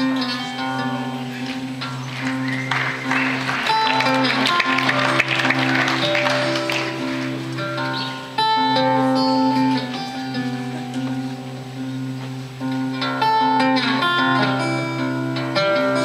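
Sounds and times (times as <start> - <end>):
acoustic guitar playing: 0.0 - 16.0
audience clapping and cheering: 1.4 - 8.4.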